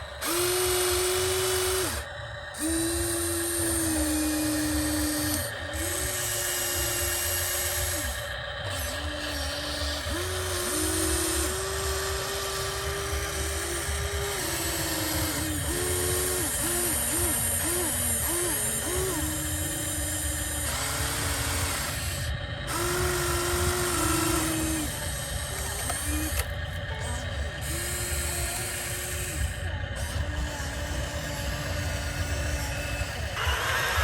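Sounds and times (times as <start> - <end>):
small electric motors whining: 0.0 - 34.0
steady low hum: 0.0 - 34.0.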